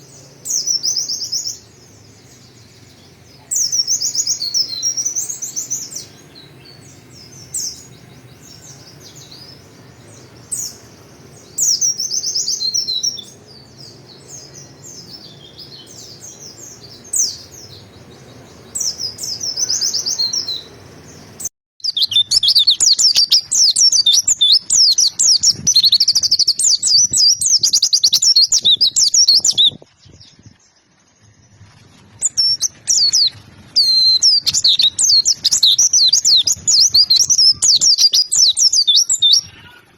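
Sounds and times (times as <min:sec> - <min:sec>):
bird singing quick chirping phrases: 0:00.0 - 0:30.6, 0:32.2 - 0:39.9.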